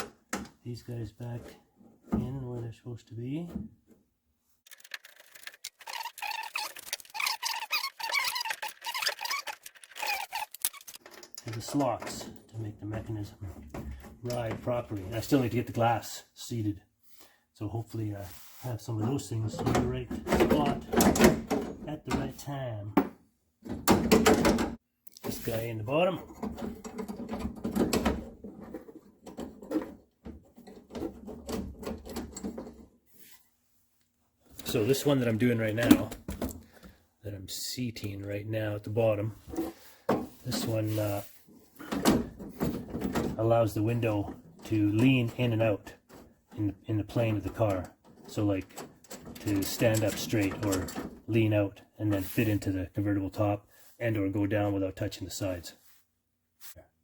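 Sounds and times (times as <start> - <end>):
metal parts clicking and rattling: 4.7 - 11.8.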